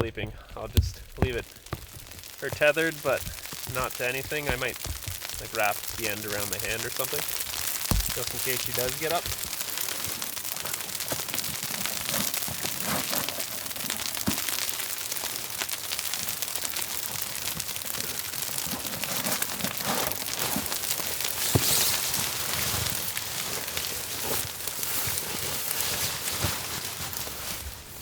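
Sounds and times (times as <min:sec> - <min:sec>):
soft thumps: 0:00.0 - 0:09.6
freezing rain pattering on a tarp: 0:00.0 - 0:28.0.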